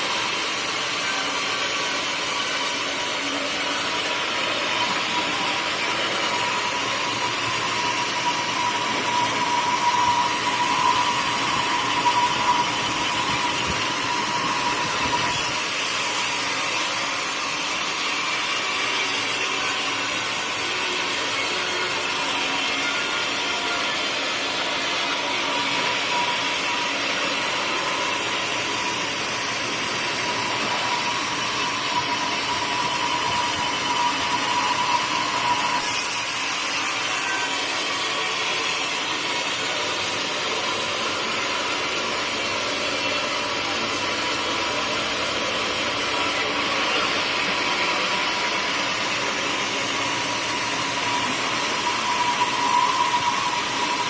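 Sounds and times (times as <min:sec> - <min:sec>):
sawmill saw cutting wood: 0:00.0 - 0:54.0.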